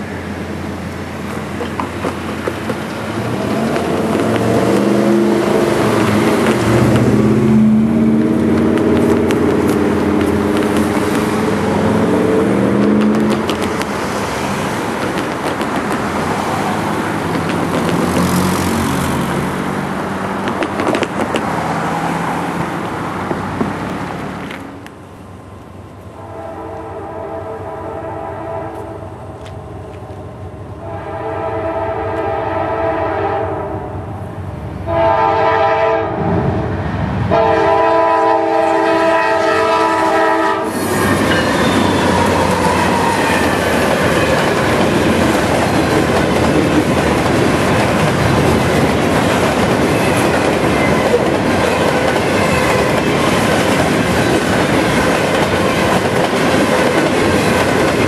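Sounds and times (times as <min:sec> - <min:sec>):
locomotive engine rumble: 0:00.0 - 0:26.2
freight cars clattering over rails: 0:01.4 - 0:22.0, 0:40.8 - 0:58.0
locomotive horn blasts: 0:26.2 - 0:29.1, 0:30.8 - 0:33.8, 0:34.9 - 0:36.4, 0:37.3 - 0:43.5.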